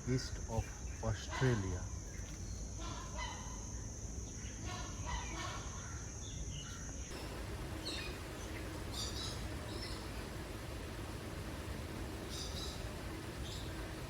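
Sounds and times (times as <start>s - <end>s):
birds calling and chirping: 4.3s - 14.0s.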